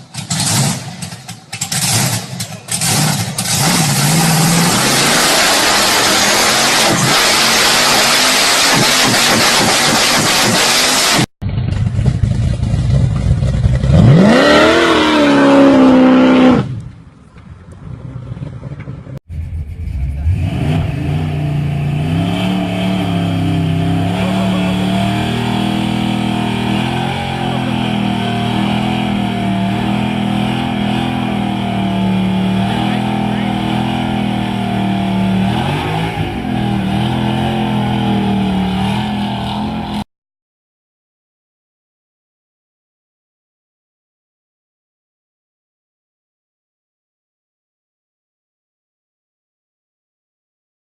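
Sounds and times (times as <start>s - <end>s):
engine revving: 0.0s - 16.9s, 19.3s - 40.0s
engine running steadily: 8.7s - 14.2s, 22.8s - 36.4s.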